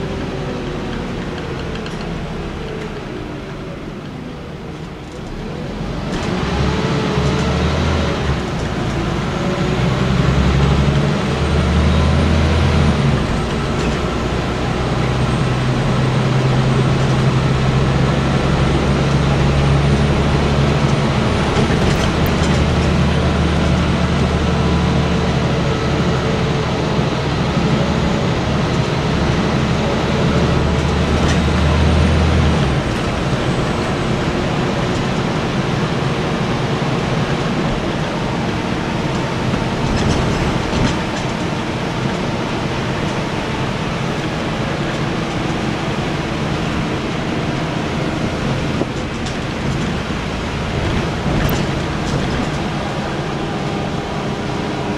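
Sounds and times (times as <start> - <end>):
bus engine drone: 0.0 - 54.9
road and body noise: 11.2 - 54.9.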